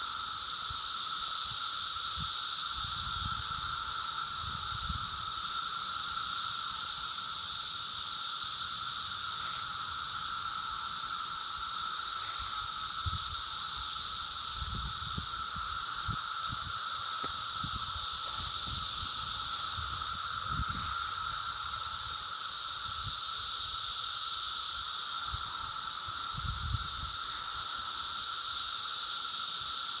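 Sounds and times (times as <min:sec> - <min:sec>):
cicadas shrill drone: 0:00.0 - 0:30.0
lower hum: 0:09.2 - 0:22.2.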